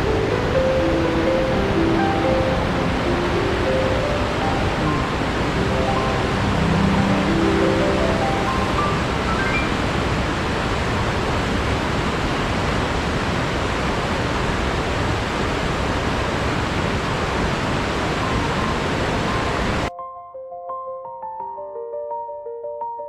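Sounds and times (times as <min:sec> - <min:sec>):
soft piano notes: 0:00.0 - 0:10.2
rising run of soft music notes: 0:00.0 - 0:10.4
rush of water: 0:00.0 - 0:19.9.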